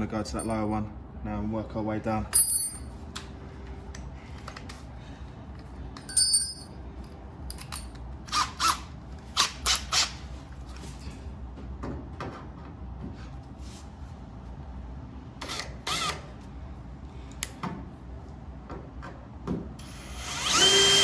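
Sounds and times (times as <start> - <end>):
steady low hum: 0.0 - 9.4
metal tool clinking: 2.3 - 2.9, 6.0 - 6.7.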